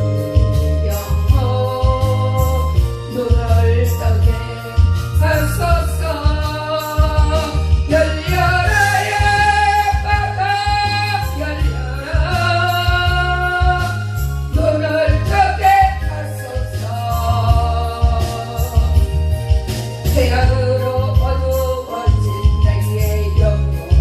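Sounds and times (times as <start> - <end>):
instrumental accompaniment: 0.0 - 24.0
stepping bass line: 0.0 - 24.0
person singing long notes: 0.8 - 19.2.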